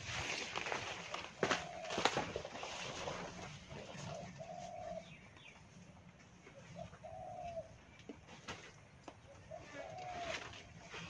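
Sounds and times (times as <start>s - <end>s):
footsteps in undergrowth: 0.0s - 3.5s
rustling in dry leaves: 0.0s - 5.1s, 9.5s - 11.0s
bird hooting: 4.0s - 5.2s, 6.7s - 7.8s, 9.4s - 10.7s.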